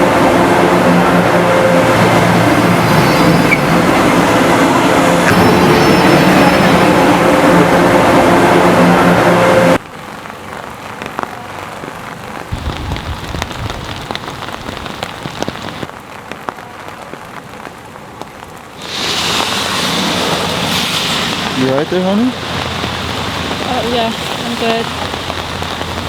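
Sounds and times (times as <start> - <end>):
loud droning with steady tones: 0.0 - 9.8, 21.4 - 26.0
rain hiss: 0.0 - 16.6, 17.2 - 26.0
sharp drip ticks: 12.6 - 15.9, 22.4 - 26.0.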